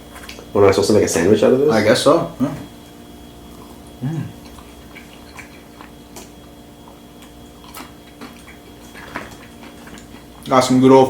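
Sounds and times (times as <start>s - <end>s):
electrical hum: 0.0s - 11.0s
murmured voice: 4.0s - 4.4s.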